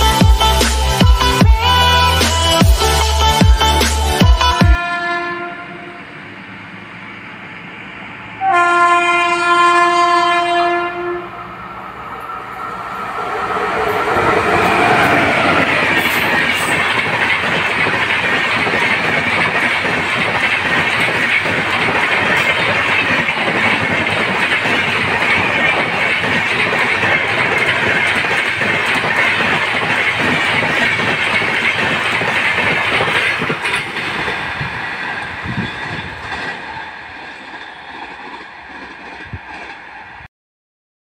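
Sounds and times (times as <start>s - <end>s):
train wheels rushing on rail: 0.0s - 40.3s
locomotive horn blast: 4.8s - 6.1s, 8.4s - 11.6s.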